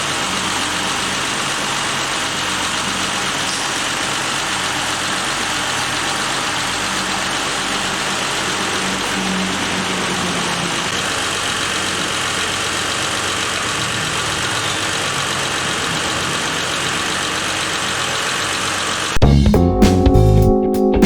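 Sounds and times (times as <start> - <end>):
vehicle engine idling: 0.0 - 19.2
guitar music with drums: 19.2 - 21.0.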